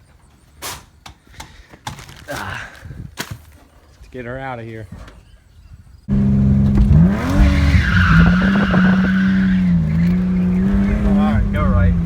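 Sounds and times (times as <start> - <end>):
car engine at high revs: 6.1 - 12.0
tires squealing: 6.1 - 12.0.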